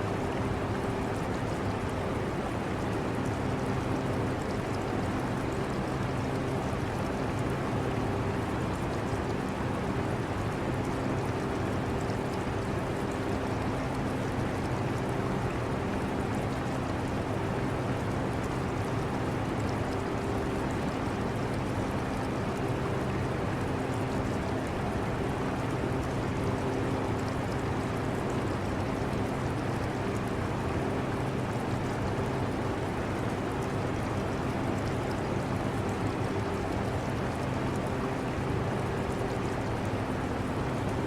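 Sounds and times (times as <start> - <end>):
aquarium water bubbling: 0.1 - 41.0.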